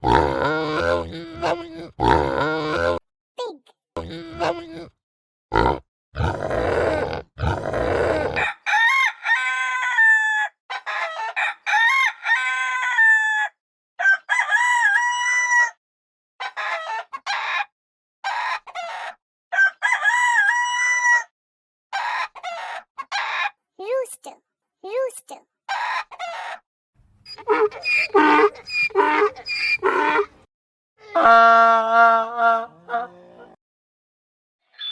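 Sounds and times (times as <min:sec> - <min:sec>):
pig grunting: 0:00.0 - 0:03.0, 0:04.0 - 0:04.9, 0:05.5 - 0:08.4, 0:27.3 - 0:30.3
rooster crowing: 0:08.4 - 0:10.5, 0:11.1 - 0:15.7, 0:19.6 - 0:21.3, 0:27.3 - 0:30.3.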